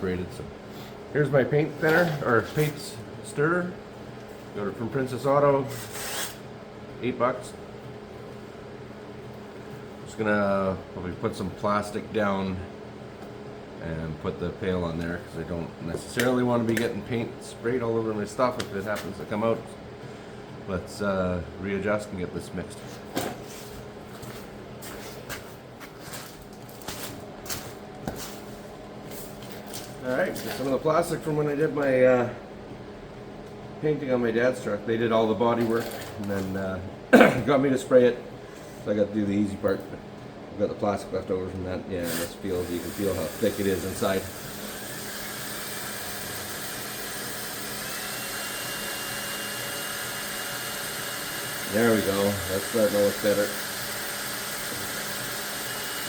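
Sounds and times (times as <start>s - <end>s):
steady low hum: 0.0s - 56.0s
electric drill mixing paint: 5.7s - 6.5s, 42.0s - 56.0s.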